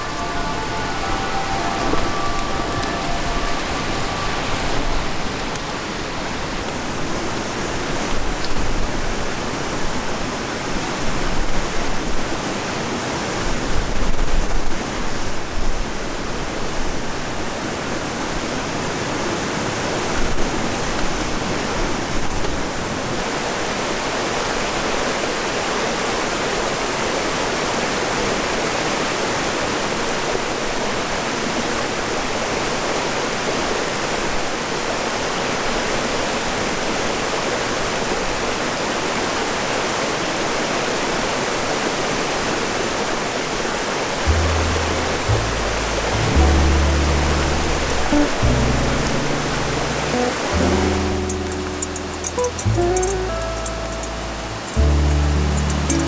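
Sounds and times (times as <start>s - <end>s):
strong wind blowing: 0.0s - 7.6s.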